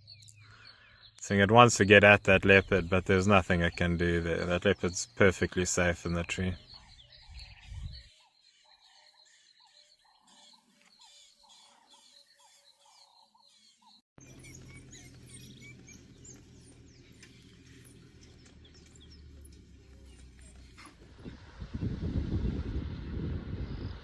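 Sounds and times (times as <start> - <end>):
high bird chirps: 0.0 - 21.0
wind buffeting microphone: 6.4 - 8.1, 18.0 - 24.0.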